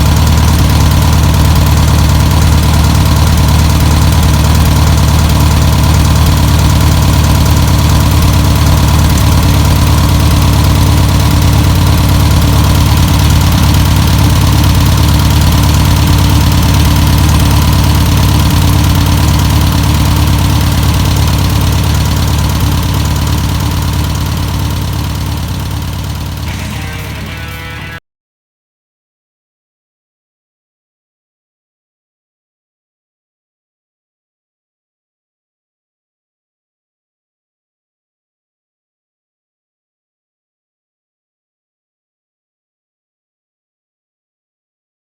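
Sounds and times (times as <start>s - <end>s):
van engine idling: 0.0s - 28.0s.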